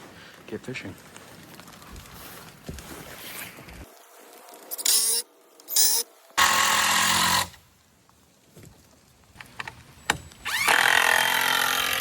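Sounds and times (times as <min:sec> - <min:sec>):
power drill driving screws: 0:04.8 - 0:07.6, 0:10.5 - 0:12.0.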